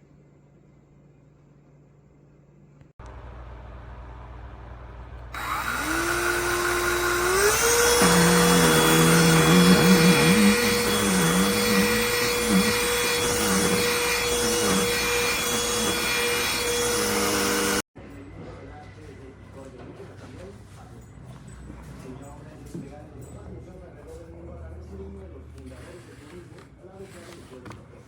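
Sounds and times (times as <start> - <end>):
handheld vacuum motor whine: 5.3 - 17.8.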